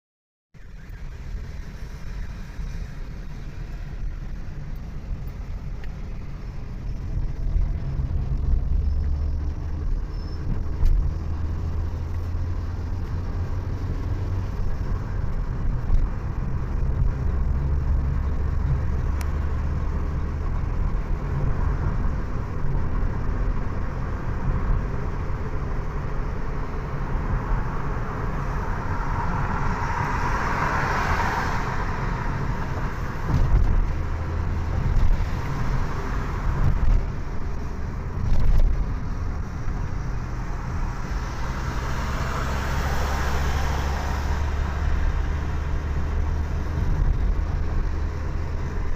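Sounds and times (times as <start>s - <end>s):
vehicle engine and road rumble: 0.5s - 48.9s.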